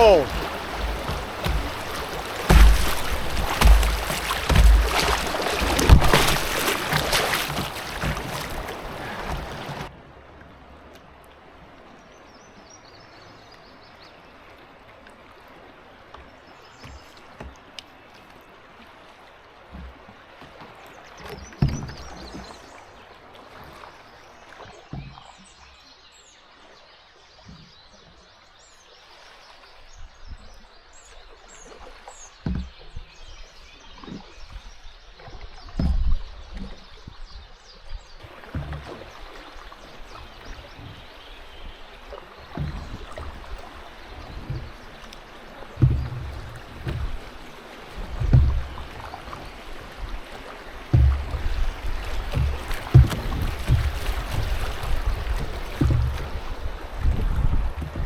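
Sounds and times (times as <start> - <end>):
birds chirping: 0.0 - 9.9
low thumps: 0.0 - 9.9, 48.0 - 48.9, 50.9 - 56.4
rushing water: 0.0 - 58.0.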